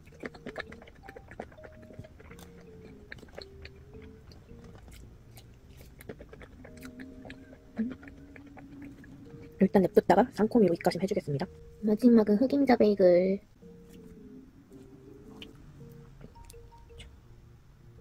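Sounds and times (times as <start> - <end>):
mouth clicks: 0.0 - 9.7
person chewing: 0.0 - 10.0, 13.8 - 17.2.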